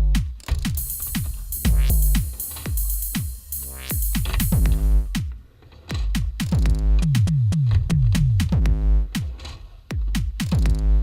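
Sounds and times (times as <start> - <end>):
held bass notes: 0.0 - 5.3
deep kick drums: 0.0 - 5.4, 6.0 - 11.0
electronic music with drum machine: 0.0 - 11.0.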